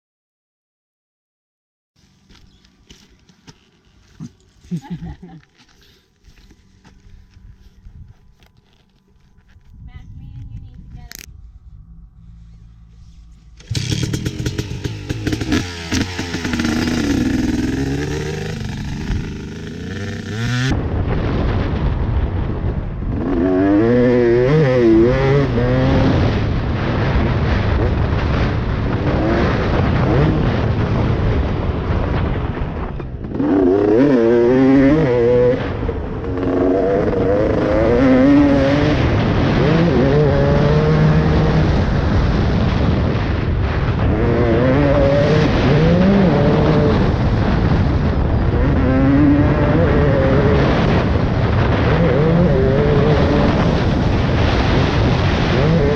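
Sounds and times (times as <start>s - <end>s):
motocross engine revving: 13.5s - 20.8s, 23.1s - 31.9s, 33.2s - 55.9s.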